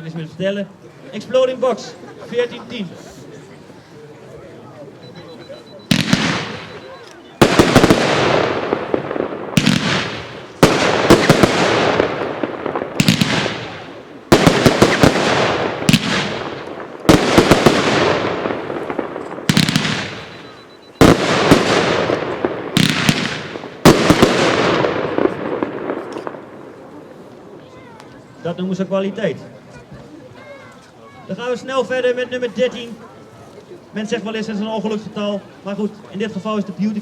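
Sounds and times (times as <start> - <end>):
firework bangs: 5.8 - 26.9
rush of firework bursts: 5.8 - 26.9.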